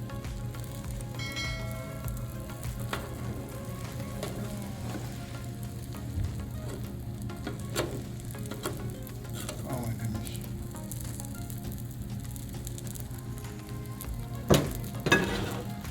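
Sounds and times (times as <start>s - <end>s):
eggs sizzling on a griddle: 0.0s - 15.9s
spatula tapping and scraping steel: 14.5s - 15.9s.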